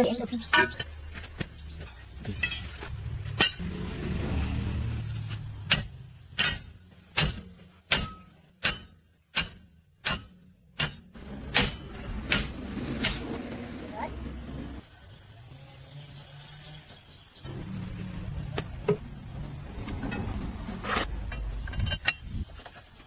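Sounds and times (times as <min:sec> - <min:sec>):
low rumble: 0:02.3 - 0:06.4, 0:11.2 - 0:14.8, 0:17.5 - 0:22.6.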